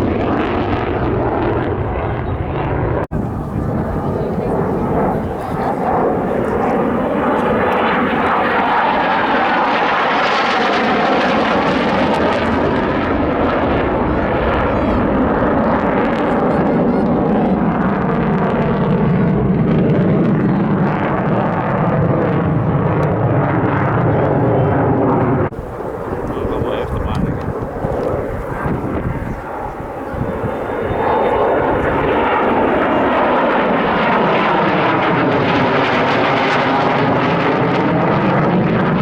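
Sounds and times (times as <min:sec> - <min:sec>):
aircraft flying past: 0:00.0 - 0:39.0.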